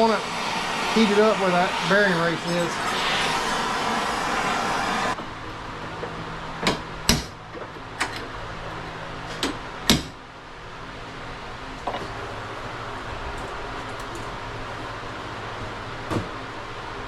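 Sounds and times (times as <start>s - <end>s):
torch hissing: 0.0s - 5.2s.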